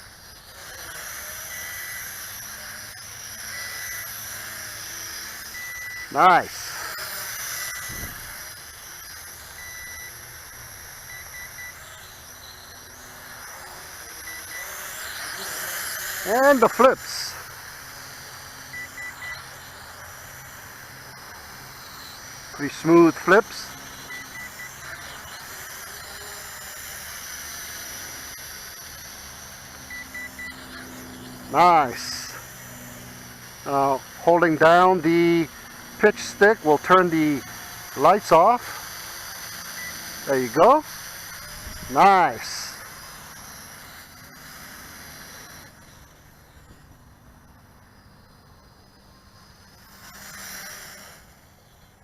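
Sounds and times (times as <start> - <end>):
drone propellers whirring: 0.0 - 52.0
quadcopter motors whining: 0.0 - 52.0
quick beeps: 3.4 - 4.2, 5.2 - 6.5, 9.1 - 13.4, 14.2 - 15.4, 18.7 - 19.6, 21.8 - 26.4, 29.8 - 30.6, 39.6 - 40.7.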